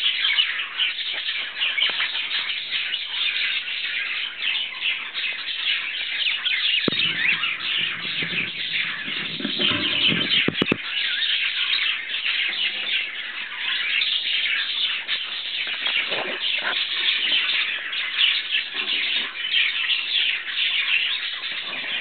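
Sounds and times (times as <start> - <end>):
budgerigars chirping: 0.0 - 22.0
low rumble: 6.9 - 10.6.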